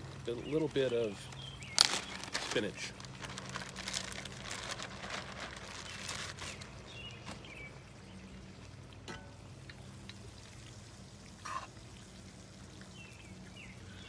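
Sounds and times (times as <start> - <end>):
food crackling and popping in skillet: 0.0 - 7.6, 9.0 - 11.7.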